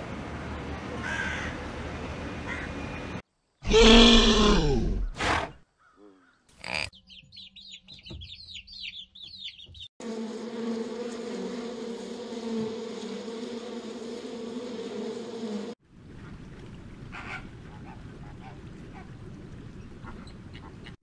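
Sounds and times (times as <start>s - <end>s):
bees buzzing: 10.0s - 15.8s.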